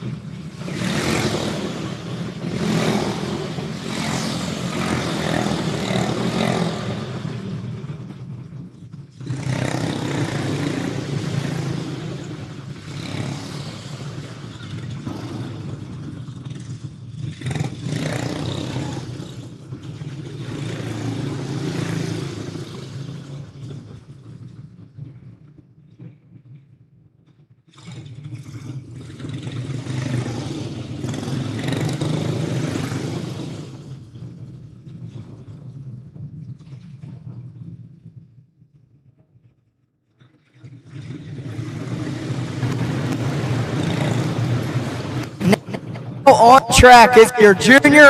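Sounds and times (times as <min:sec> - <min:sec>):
racing kart engines: 0:00.0 - 0:25.4, 0:27.8 - 0:35.5, 0:40.9 - 0:48.0.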